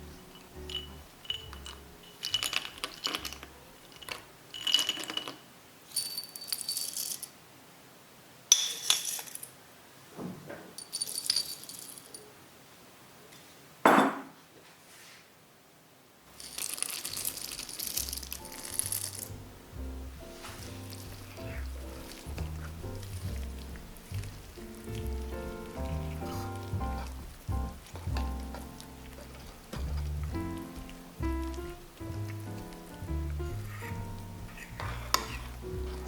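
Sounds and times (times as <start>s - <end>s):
soft background music: 0.0s - 4.2s, 16.6s - 36.0s
utensils clinking on dishes: 0.0s - 7.3s, 8.5s - 9.5s, 16.3s - 19.4s, 20.3s - 36.0s.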